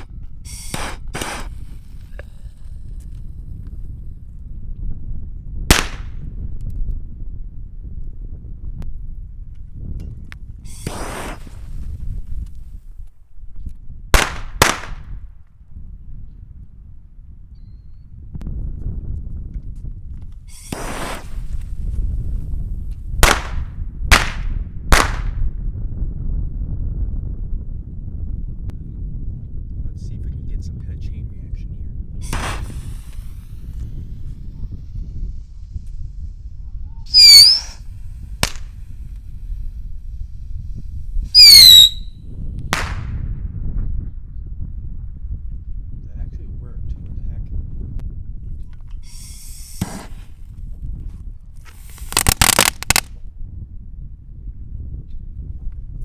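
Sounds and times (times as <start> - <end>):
firework bangs: 0.0 - 2.6, 5.7 - 6.2, 10.7 - 12.4, 14.2 - 15.2, 20.5 - 22.4, 23.2 - 25.4, 32.2 - 35.6, 37.1 - 39.7, 41.3 - 42.1, 42.8 - 43.2, 49.1 - 50.4, 51.7 - 53.1
whistling rockets: 0.0 - 2.8, 5.7 - 6.3, 10.7 - 12.5, 14.2 - 15.3, 20.5 - 25.5, 32.2 - 42.1, 42.8 - 43.2, 49.0 - 50.5, 51.7 - 53.1
firework hiss: 0.0 - 3.1, 5.7 - 6.1, 10.7 - 12.8, 14.2 - 15.0, 20.5 - 22.6, 23.2 - 24.4, 32.2 - 42.1, 49.0 - 50.5, 51.6 - 53.1
wind rumble on microphone: 0.0 - 56.0.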